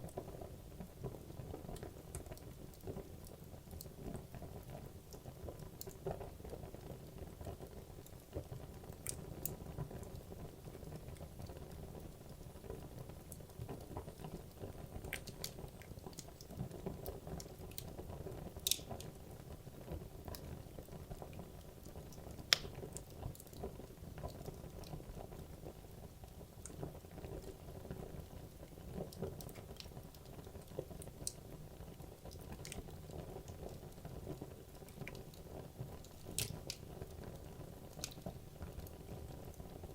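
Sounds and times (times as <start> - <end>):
fire crackling and popping: 0.0 - 39.9
low rumble of flames: 0.0 - 39.9
loud wood snaps: 18.6 - 18.9, 36.4 - 36.8.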